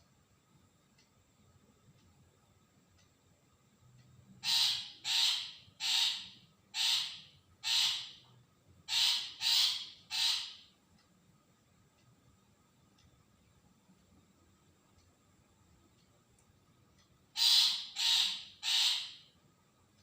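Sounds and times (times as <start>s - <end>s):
shrike harsh rasping calls: 4.4s - 8.2s, 8.9s - 10.7s, 17.3s - 19.3s.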